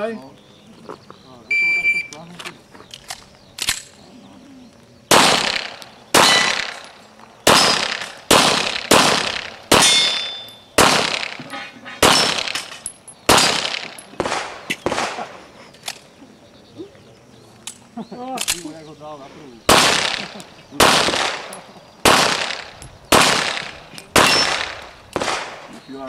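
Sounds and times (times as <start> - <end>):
handgun shots: 5.1 - 11.4, 12.0 - 15.2, 19.7 - 25.7.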